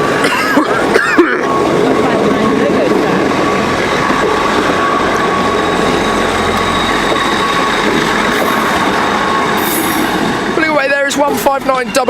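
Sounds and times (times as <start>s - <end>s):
diesel train engine drone: 0.0s - 12.0s
thin high whine: 0.0s - 12.0s.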